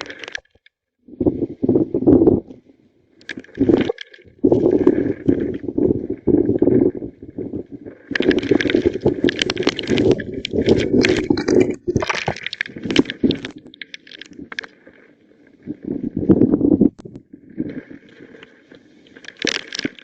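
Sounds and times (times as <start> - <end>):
strong wind gusting: 1.1 - 2.5.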